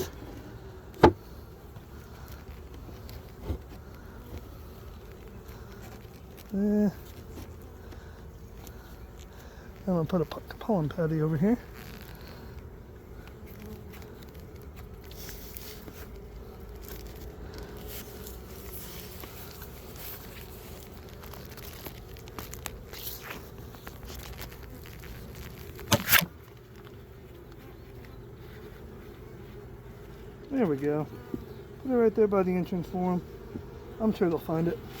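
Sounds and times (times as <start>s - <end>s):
honeybees humming: 0.0s - 35.0s
crinkling and tearing: 2.0s - 9.9s, 11.5s - 27.6s.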